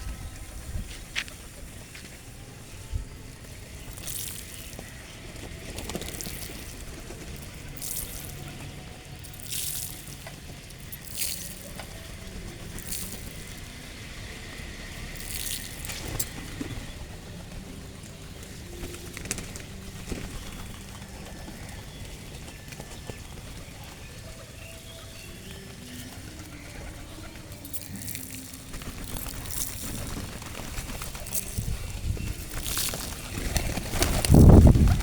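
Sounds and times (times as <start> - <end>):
bird wings flapping: 3.9 - 8.6, 18.6 - 23.9, 26.2 - 35.0.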